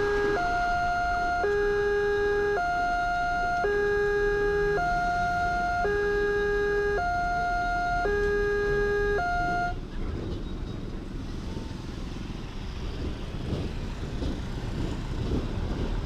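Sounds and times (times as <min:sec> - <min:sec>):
level crossing warning siren: 0:00.0 - 0:09.8
road traffic passing: 0:00.0 - 0:16.0.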